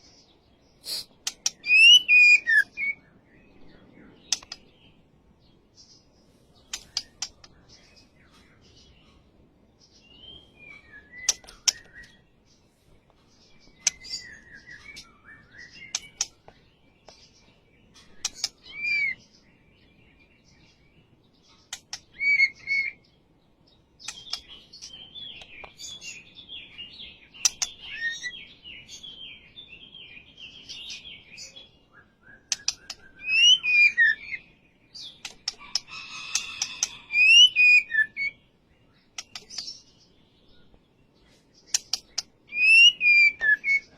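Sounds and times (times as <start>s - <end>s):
bird whistling and chattering: 0.8s - 3.0s, 22.0s - 23.0s, 32.2s - 34.4s, 36.4s - 38.4s, 41.7s - 43.9s
sharp clicks: 1.2s - 1.6s.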